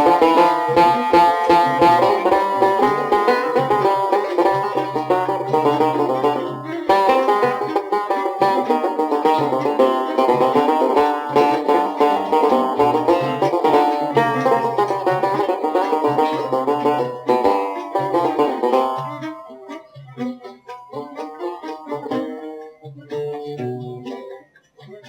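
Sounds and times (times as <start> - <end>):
fast plucked-string melody: 0.0 - 24.4.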